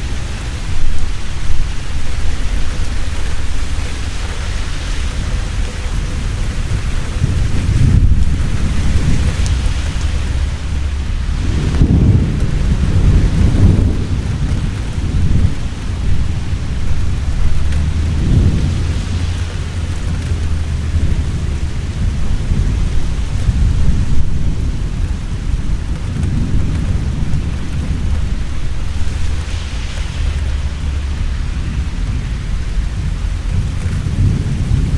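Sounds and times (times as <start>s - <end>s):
heavy rain: 0.0s - 34.9s
thunder rolling: 0.0s - 34.9s.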